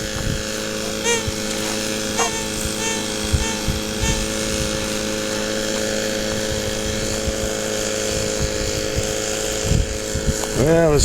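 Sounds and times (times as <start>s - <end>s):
small gas engine running: 0.0s - 11.0s.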